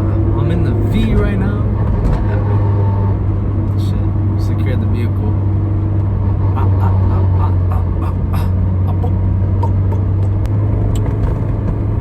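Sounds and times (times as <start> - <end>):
car engine drone from inside: 0.0 - 12.0.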